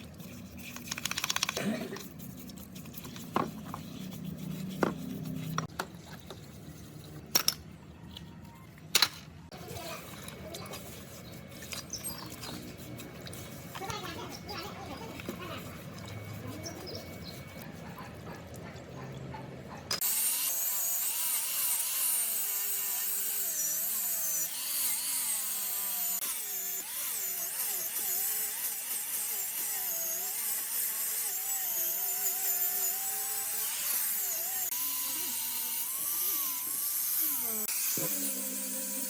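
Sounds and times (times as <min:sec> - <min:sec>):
electric power tool whining: 0:20.0 - 0:39.0.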